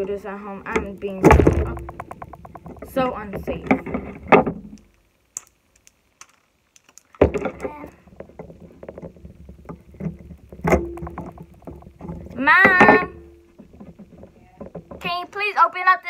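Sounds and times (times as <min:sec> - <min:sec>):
sudden knock: 0:01.2 - 0:04.7
plastic capsule clicks and scraping: 0:02.0 - 0:11.4.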